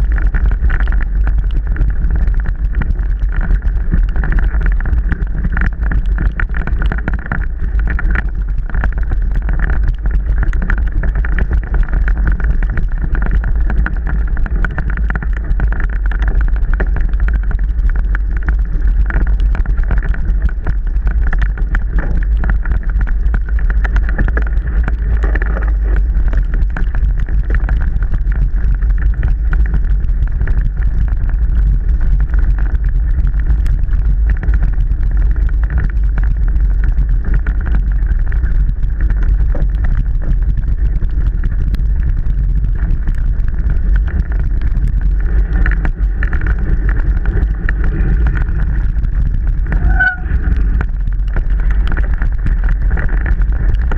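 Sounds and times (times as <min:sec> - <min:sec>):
bike rattling and knocking: 0:00.0 - 0:53.9
wind rumble: 0:00.0 - 0:53.9.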